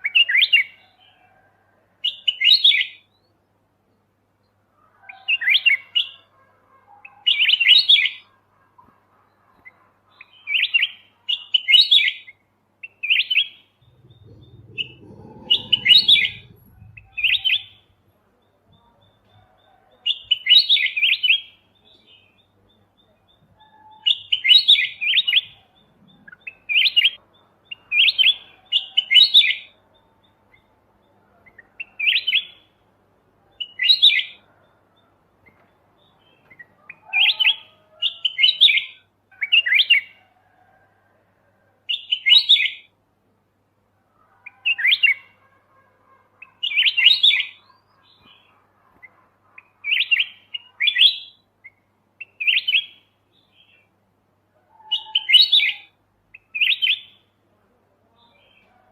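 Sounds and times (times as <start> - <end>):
bulbul chirping: 13.8 - 17.8.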